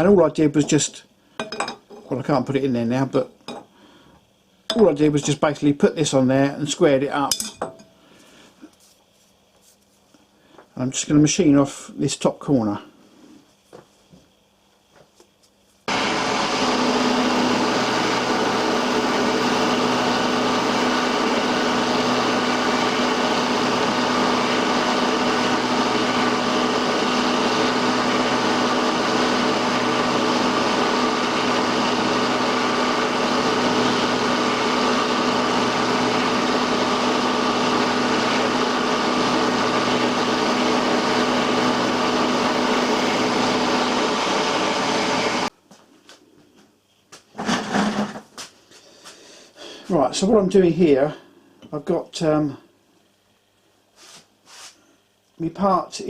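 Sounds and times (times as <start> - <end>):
milling machine whirring: 15.9 - 45.5.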